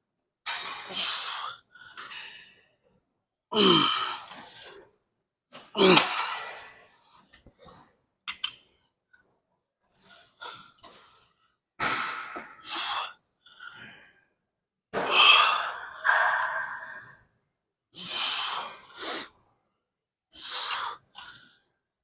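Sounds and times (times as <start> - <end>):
man groaning: 3.5 - 4.0
man breathing heavily: 18.0 - 19.4, 20.3 - 21.7.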